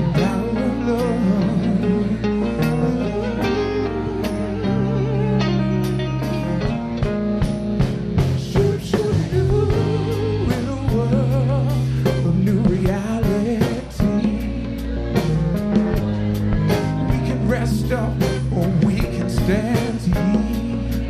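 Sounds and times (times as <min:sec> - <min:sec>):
wordless singing: 0:00.0 - 0:06.4, 0:08.2 - 0:21.0
bass line: 0:00.0 - 0:21.0
guitar: 0:00.0 - 0:21.0
drum hits: 0:06.7 - 0:11.3.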